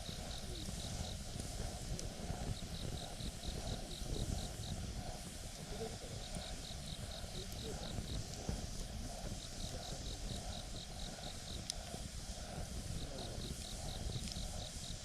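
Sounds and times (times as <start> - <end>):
campfire crackling: 0.0 - 15.0
insect chirping: 0.0 - 15.0.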